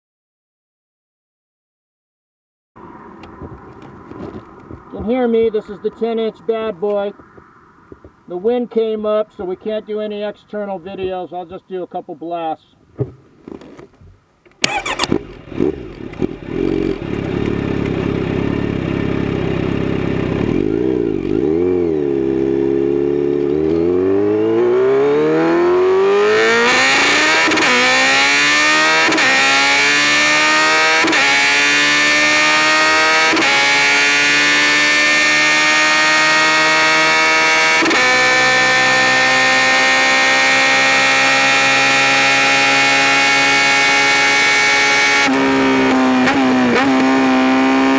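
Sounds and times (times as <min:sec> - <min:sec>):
motorcycle engine accelerating: 0:02.8 - 0:05.2, 0:14.6 - 0:47.9
wind rush: 0:02.8 - 0:05.6.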